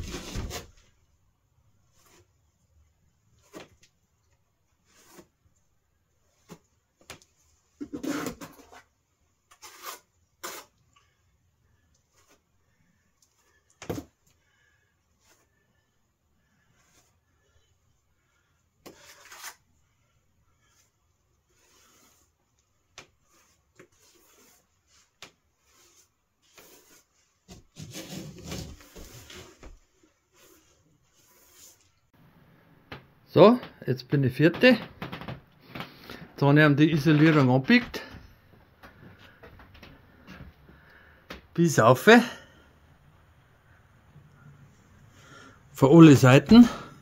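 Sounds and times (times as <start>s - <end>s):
knocks and scrapes: 0.0s - 1.0s, 6.3s - 10.8s, 20.6s - 32.2s, 32.9s - 41.5s
rustling scrape: 18.9s - 19.6s, 20.6s - 22.4s, 23.2s - 32.1s.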